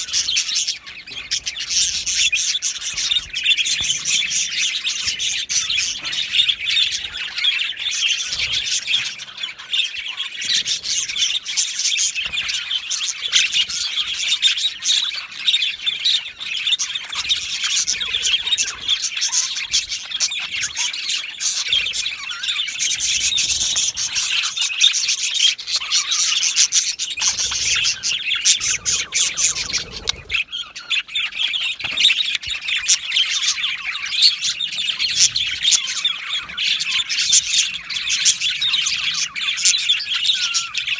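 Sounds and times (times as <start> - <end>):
budgerigars chirping and chattering: 0.0 - 40.9
budgerigar squawks: 10.2 - 40.9.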